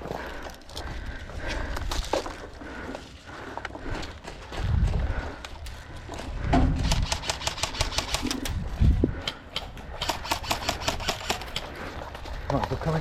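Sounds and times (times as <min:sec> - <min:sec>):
low thumps of wind on camera: 0:04.5 - 0:05.5, 0:06.3 - 0:07.3, 0:08.2 - 0:09.9
airsoft guns firing rapid bursts: 0:06.8 - 0:08.4, 0:10.0 - 0:11.6.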